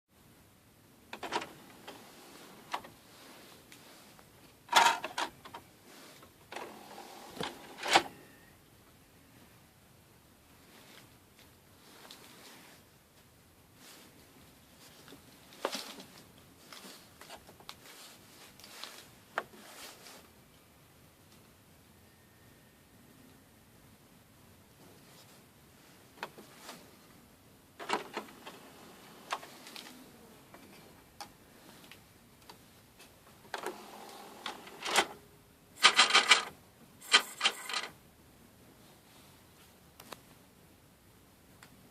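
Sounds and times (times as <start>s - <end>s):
cd player mechanism scraping: 27.8s - 29.6s, 33.5s - 35.2s, 35.8s - 37.9s
cd player mechanism clicking: 33.5s - 35.2s.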